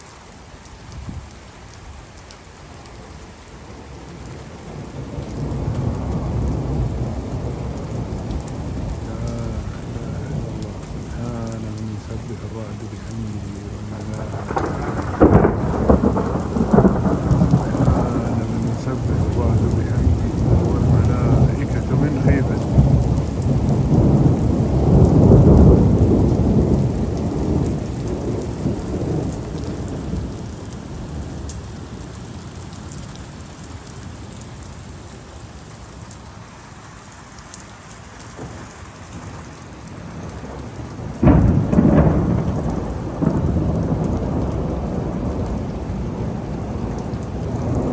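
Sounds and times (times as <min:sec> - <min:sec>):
steady rain falling: 0:00.0 - 0:47.9
rolling thunder: 0:04.0 - 0:31.5, 0:38.4 - 0:47.9
sharp thunderclap: 0:04.7 - 0:30.4, 0:40.1 - 0:47.9.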